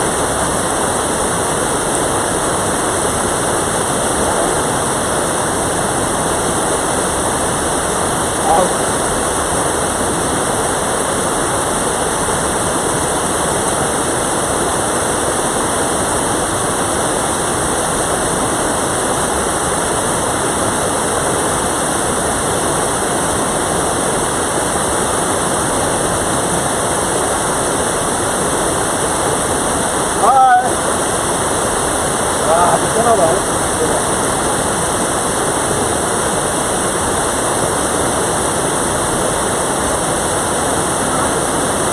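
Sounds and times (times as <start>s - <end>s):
stream rushing water: 0.0s - 41.9s.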